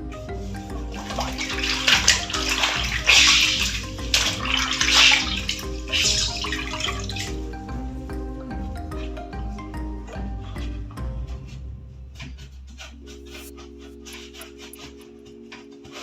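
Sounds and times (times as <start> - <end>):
background music: 0.0 - 16.0
water splashing and running: 0.6 - 7.4.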